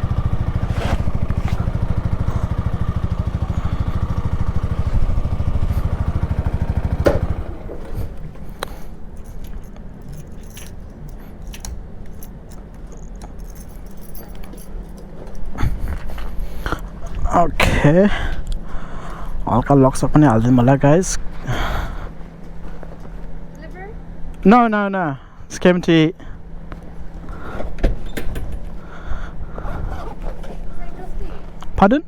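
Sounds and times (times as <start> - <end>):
motorcycle engine idling: 0.0 - 9.7
keys jingling: 7.9 - 17.1.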